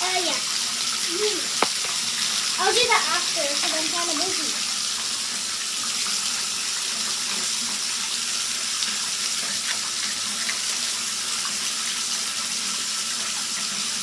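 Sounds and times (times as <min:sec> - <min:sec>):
tap water running into basin: 0:00.0 - 0:14.0.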